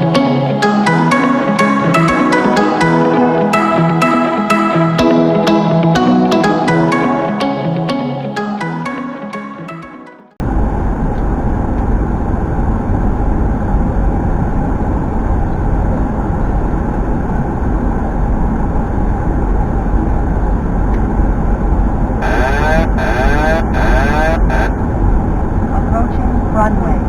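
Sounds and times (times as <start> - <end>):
airflow and engine noise in cockpit: 10.4 - 27.0
person speaking: 22.2 - 24.7.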